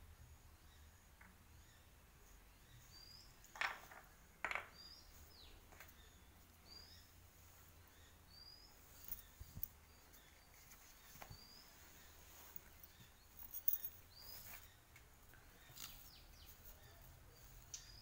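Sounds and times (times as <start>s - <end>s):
faint bird chirps: 4.8s - 18.0s.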